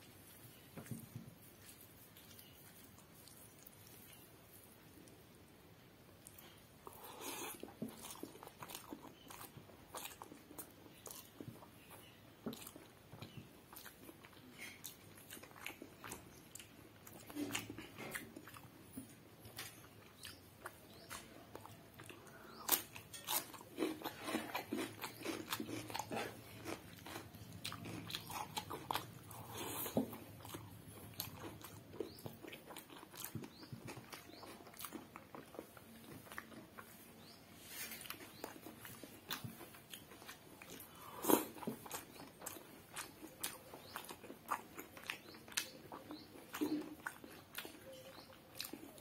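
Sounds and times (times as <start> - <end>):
person chewing rice: 0.0 - 5.2, 6.1 - 49.0
crisp crunching of cucumber: 13.4 - 49.0.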